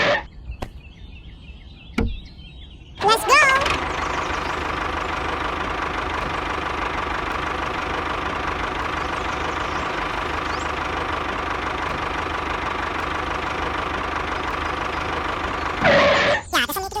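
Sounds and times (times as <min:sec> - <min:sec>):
engine idling: 0:03.0 - 0:16.4
constant high tone: 0:03.0 - 0:17.0.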